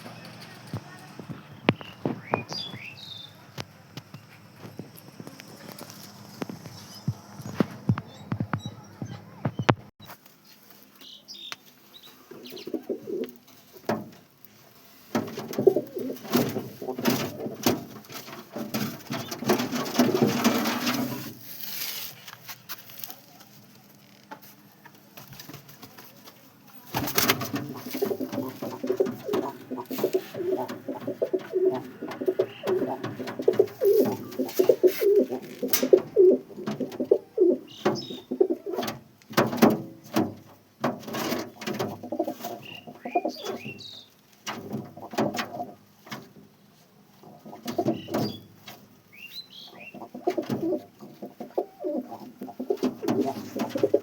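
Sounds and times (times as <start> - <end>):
pigeons cooing: 12.2 - 14.0, 15.2 - 21.3, 26.9 - 39.0, 41.1 - 44.0, 47.2 - 48.5, 49.2 - 54.0.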